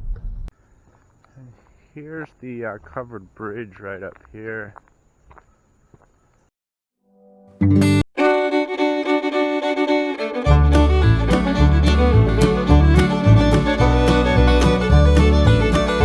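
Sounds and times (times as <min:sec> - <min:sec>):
bluegrass music: 0:07.7 - 0:16.0.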